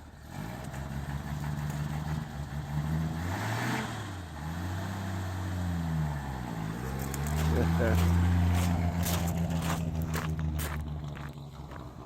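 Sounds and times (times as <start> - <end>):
car engine running: 5.7 - 12.0.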